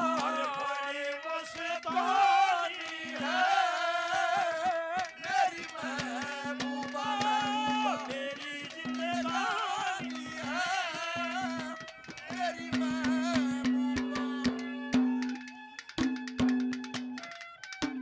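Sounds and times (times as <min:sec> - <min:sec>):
hand drum strokes: 0:11.4 - 0:18.0.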